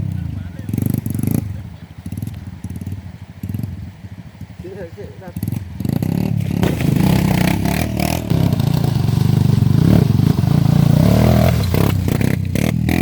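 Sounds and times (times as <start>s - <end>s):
off-road vehicle engine revving: 0.0s - 13.0s
vehicle clattering and scraping: 5.3s - 13.0s.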